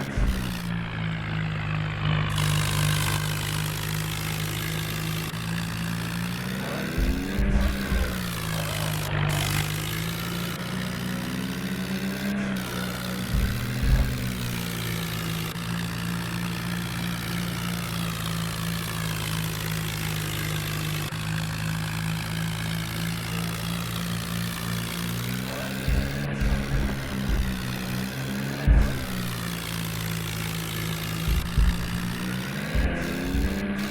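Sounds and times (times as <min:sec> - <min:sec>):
low thumps: 0:00.0 - 0:01.1, 0:06.8 - 0:10.5, 0:13.2 - 0:14.9, 0:25.9 - 0:29.7, 0:31.0 - 0:33.9
tractor diesel engine running: 0:00.0 - 0:33.9.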